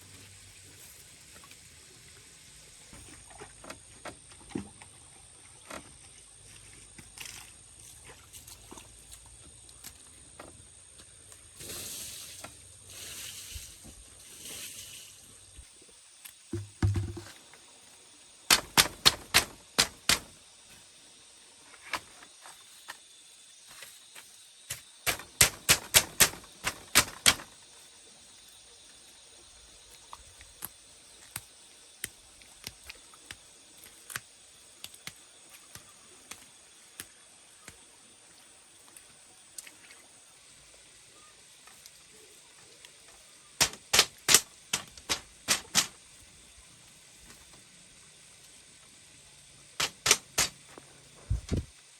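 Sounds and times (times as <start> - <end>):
sharp knocks: 18.5 - 20.3, 25.1 - 27.5, 43.6 - 45.9, 49.8 - 50.6.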